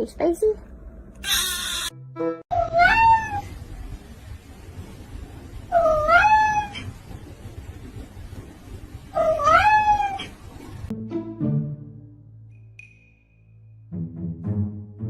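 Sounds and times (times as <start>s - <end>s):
cat meowing: 1.2s - 1.9s, 2.5s - 3.5s, 5.7s - 7.0s, 9.1s - 10.4s.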